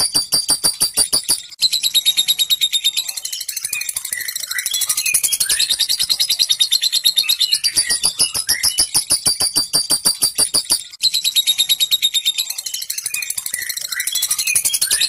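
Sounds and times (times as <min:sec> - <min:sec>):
lovebird chatter of sharp clicks: 0:00.0 - 0:01.5, 0:05.3 - 0:06.2, 0:07.6 - 0:10.9
soft bird chirping: 0:00.0 - 0:15.0.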